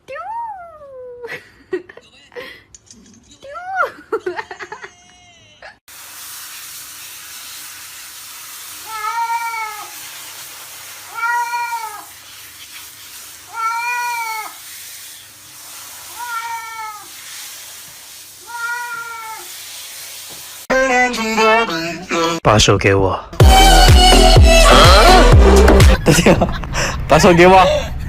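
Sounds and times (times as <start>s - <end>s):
background hiss: 5.9s - 20.7s
cat meowing: 8.9s - 9.9s, 11.1s - 12.1s, 13.5s - 14.6s, 16.1s - 17.1s, 18.4s - 19.5s.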